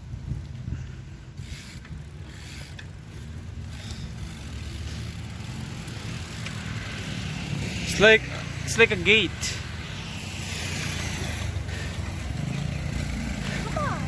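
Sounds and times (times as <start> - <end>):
rumble of tyres: 0.0 - 14.0
freewheel ratchet ticking: 1.4 - 7.3.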